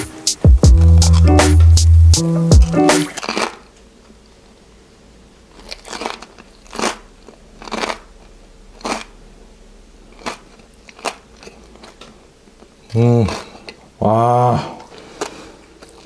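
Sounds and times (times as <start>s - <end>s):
crackling skin crunching when chewed: 3.1s - 3.7s, 5.5s - 9.3s, 10.0s - 13.9s, 14.8s - 16.0s.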